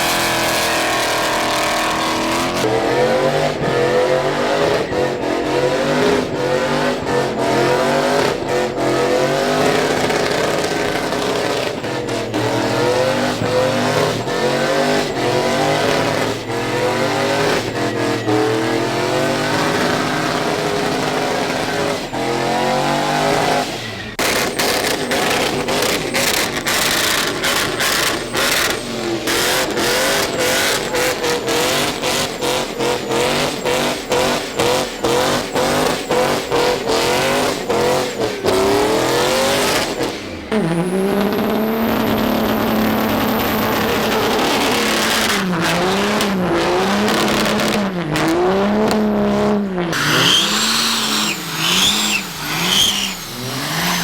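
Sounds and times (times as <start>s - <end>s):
diesel truck engine revving: 0.0s - 54.0s
high whistle: 12.4s - 46.0s, 49.9s - 54.0s.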